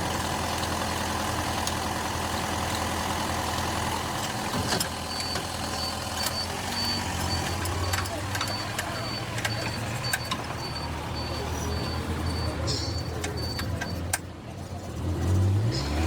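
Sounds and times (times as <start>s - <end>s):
car engine idling: 0.0s - 15.7s
high electronic beep: 5.0s - 14.1s.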